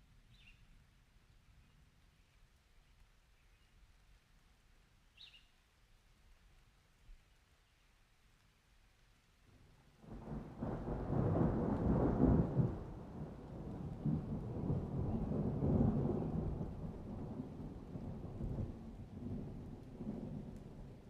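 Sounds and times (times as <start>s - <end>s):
rolling thunder: 10.0s - 21.0s.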